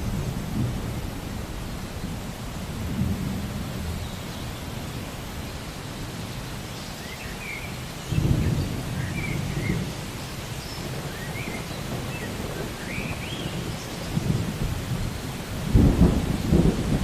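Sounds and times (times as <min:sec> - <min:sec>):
thunder rumbling: 0:00.0 - 0:04.1, 0:08.1 - 0:17.0
steady rain: 0:00.0 - 0:17.0.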